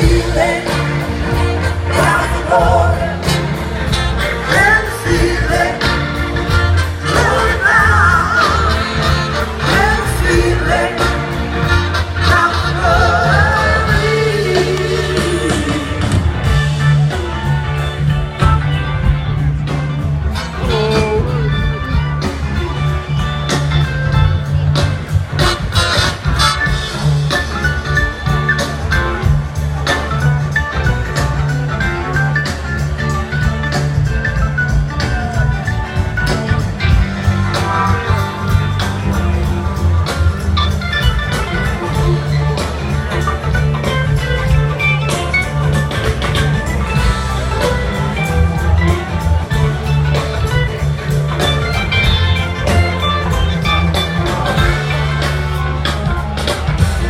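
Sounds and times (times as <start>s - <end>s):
bass: 0.0s - 57.0s
guitar: 0.0s - 57.0s.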